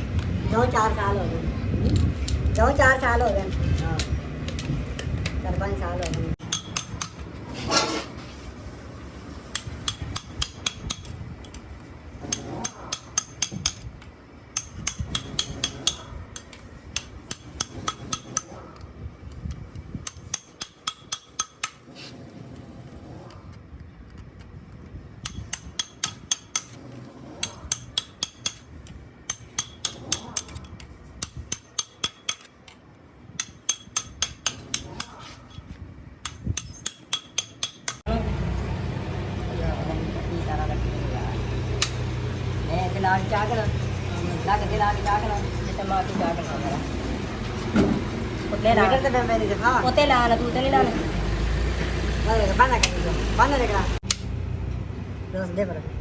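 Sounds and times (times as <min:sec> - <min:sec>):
hammer tapping on metal: 0:06.0 - 0:07.3, 0:09.5 - 0:11.6, 0:12.2 - 0:13.9, 0:14.5 - 0:18.6, 0:20.1 - 0:21.8, 0:27.4 - 0:28.7, 0:29.3 - 0:30.6, 0:31.2 - 0:32.6, 0:33.4 - 0:35.3, 0:36.2 - 0:38.1.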